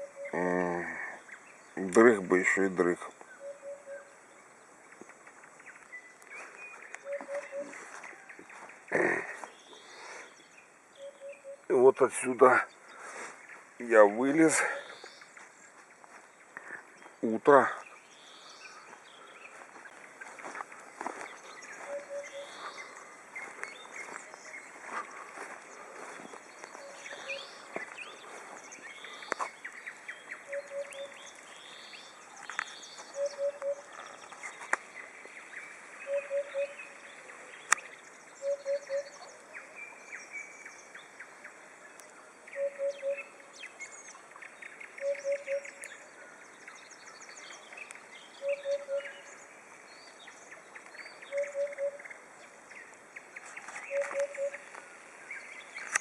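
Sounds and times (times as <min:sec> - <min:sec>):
bird low hooting call: 0:00.0 - 0:01.4, 0:03.3 - 0:04.5, 0:05.7 - 0:11.8, 0:21.1 - 0:34.4, 0:35.4 - 0:37.6, 0:38.3 - 0:40.6, 0:42.4 - 0:43.5, 0:44.8 - 0:49.5, 0:50.5 - 0:52.2, 0:53.6 - 0:54.8
nightingales singing: 0:00.0 - 0:56.0
songbirds chorus: 0:00.0 - 0:56.0.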